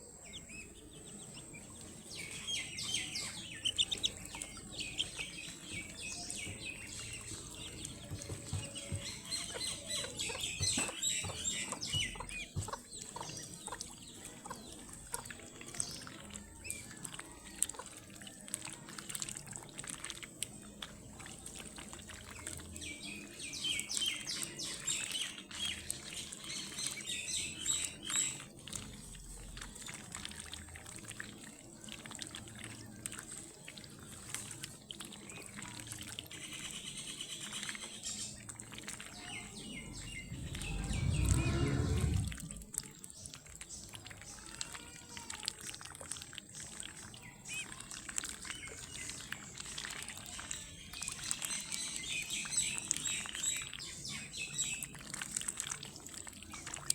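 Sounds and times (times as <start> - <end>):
water trickling and splashing: 0.0 - 56.9
ducklings peeping: 0.2 - 15.4
low rush: 39.5 - 42.8.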